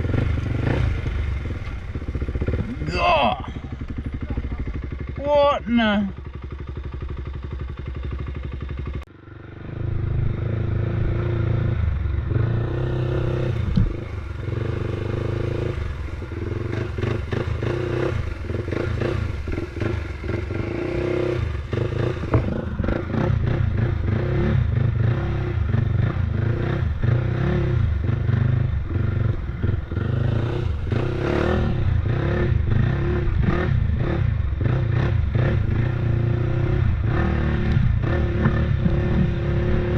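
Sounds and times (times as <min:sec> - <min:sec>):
off-road motorbike engine: 0:00.0 - 0:39.9.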